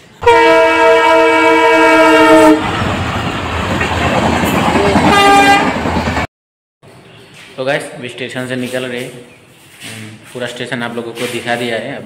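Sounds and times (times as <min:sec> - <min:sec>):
train horn blast: 0:00.2 - 0:02.7, 0:04.8 - 0:05.8
passenger coaches rumbling past: 0:00.2 - 0:06.3.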